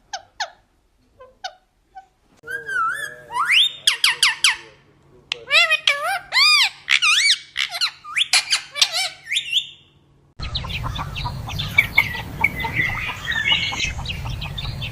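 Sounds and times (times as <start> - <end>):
parrot squawking and whistling: 1.4 - 4.6, 5.4 - 9.9.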